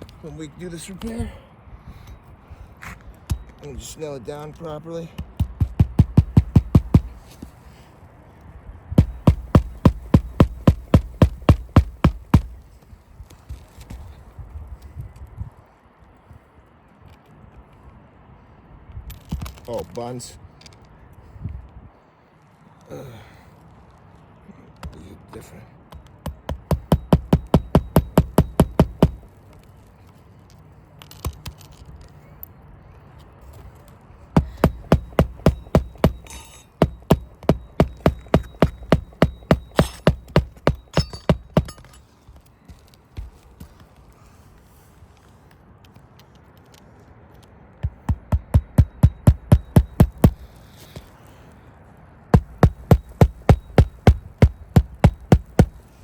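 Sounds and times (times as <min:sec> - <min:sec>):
hammer driving roofing nails: 0:05.1 - 0:07.5, 0:09.0 - 0:12.7, 0:25.9 - 0:29.3, 0:34.4 - 0:42.0, 0:47.8 - 0:51.1, 0:52.3 - 0:56.0.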